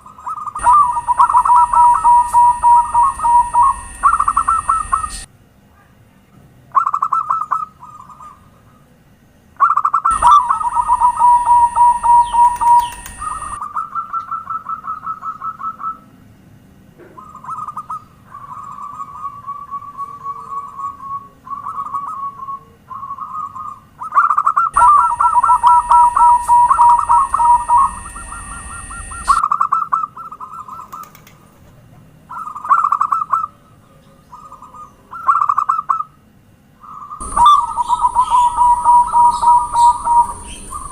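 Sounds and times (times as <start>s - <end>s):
doves cooing: 0.0s - 5.3s, 9.6s - 16.0s, 17.0s - 36.1s, 36.8s - 40.9s
steady high tone: 0.6s - 5.3s, 10.1s - 13.6s, 24.8s - 29.4s, 37.2s - 40.9s.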